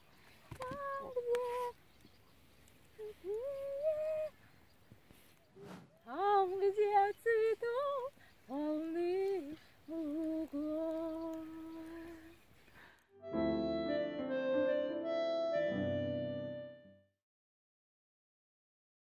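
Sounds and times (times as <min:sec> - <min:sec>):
woman humming a melody: 0:03.0 - 0:04.4, 0:06.1 - 0:12.4.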